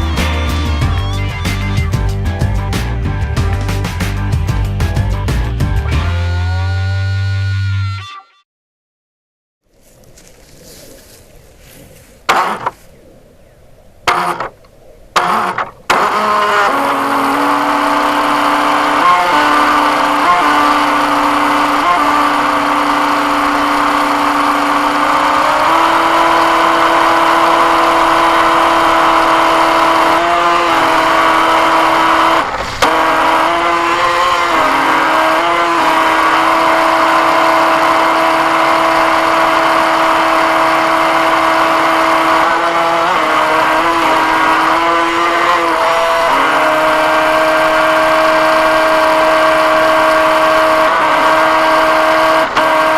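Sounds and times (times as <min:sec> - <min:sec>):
model boat motor running: 0:12.3 - 0:12.7, 0:14.1 - 0:14.5, 0:15.2 - 0:52.9.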